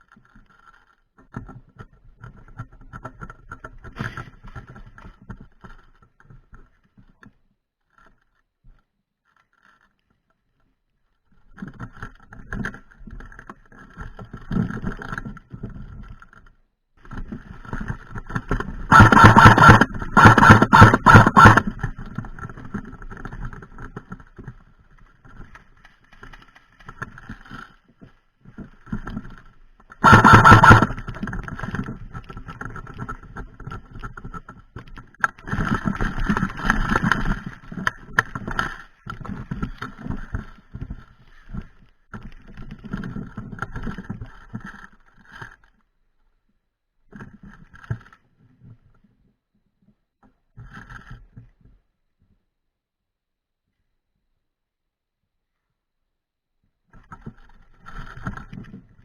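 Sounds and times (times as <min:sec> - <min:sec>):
airsoft gun firing bursts: 0:18.9 - 0:21.6, 0:30.0 - 0:31.0.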